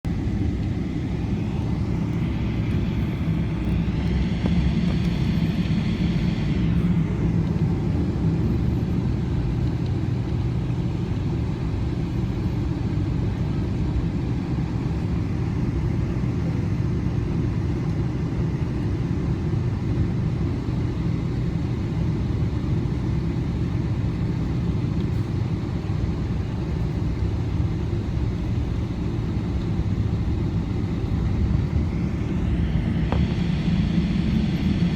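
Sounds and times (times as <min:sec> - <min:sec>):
high whine: 0:00.0 - 0:19.0, 0:27.8 - 0:34.9
low rumble of airliner engines: 0:00.0 - 0:34.9.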